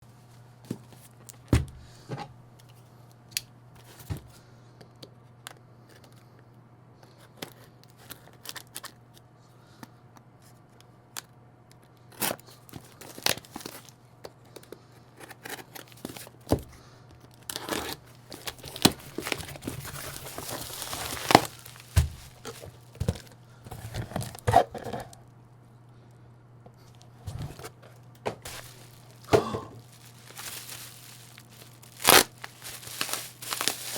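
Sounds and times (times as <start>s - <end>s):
cardboard and plastic tearing: 8.0s - 9.0s, 12.1s - 13.9s, 17.3s - 25.2s, 28.4s - 33.9s.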